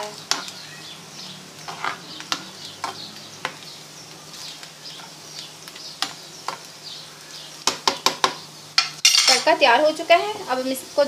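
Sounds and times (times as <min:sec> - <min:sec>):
spices sizzling in hot oil: 0:00.0 - 0:11.0
spoon knocking against pan: 0:07.6 - 0:09.4.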